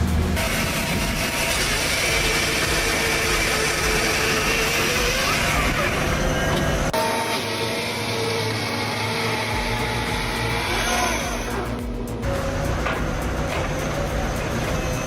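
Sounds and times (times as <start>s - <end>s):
chainsaw engine running: 0.4s - 11.8s.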